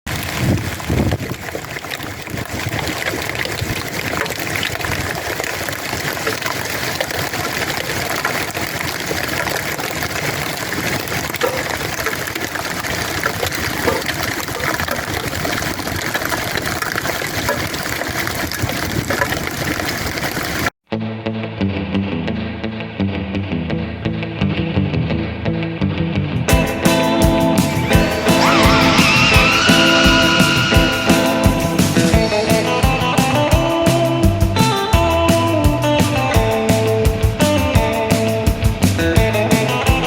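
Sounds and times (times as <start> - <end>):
hail or hard rain falling: 0.1 - 20.7.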